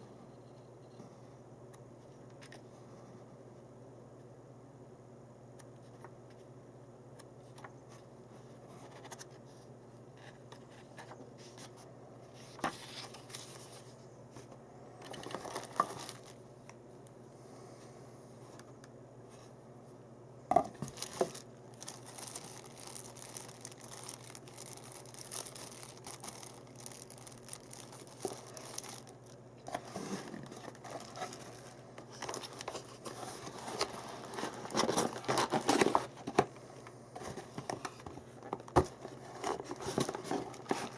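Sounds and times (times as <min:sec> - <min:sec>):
packaging crinkling and tearing: 0:15.0 - 0:16.4, 0:20.7 - 0:36.5, 0:37.2 - 0:40.9.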